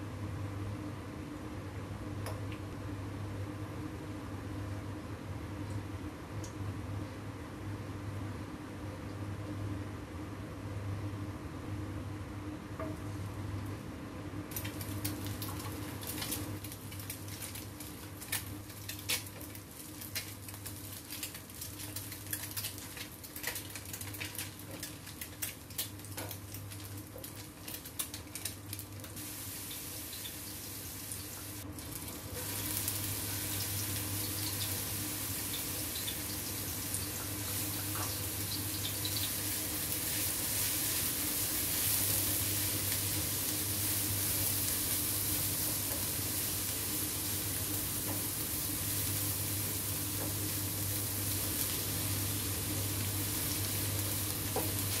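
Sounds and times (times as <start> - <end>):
low steady hum: 0.0 - 55.0
eggs frying in oil: 14.5 - 55.0
stir-frying sizzle: 14.5 - 55.0.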